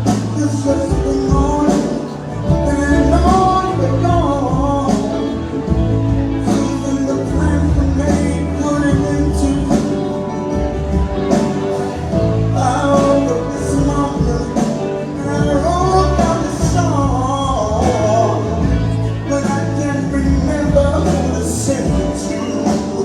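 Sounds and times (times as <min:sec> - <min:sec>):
live soft rock ballad: 0:00.0 - 0:23.0.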